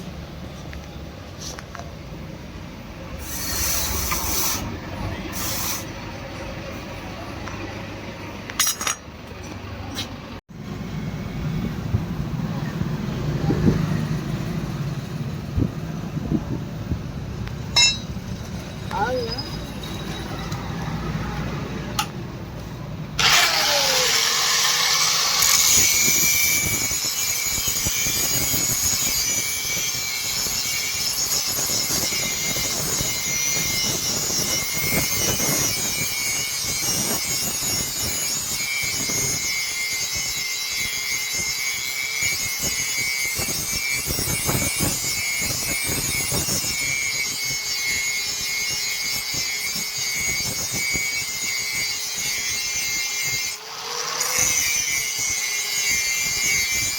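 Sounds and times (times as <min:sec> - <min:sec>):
power tool working metal: 0:03.2 - 0:06.2, 0:23.2 - 0:56.9.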